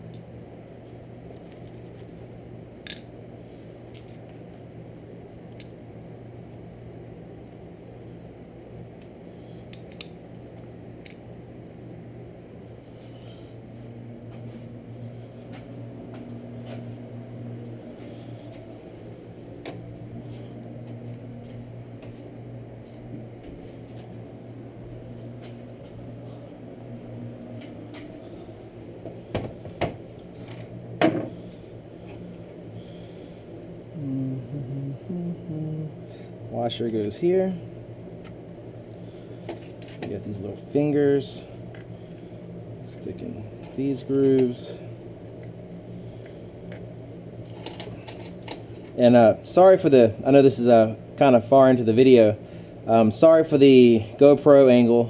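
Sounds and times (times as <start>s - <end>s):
steady low hum: 0.0s - 55.0s
small parts knocking and clicking: 2.8s - 3.1s.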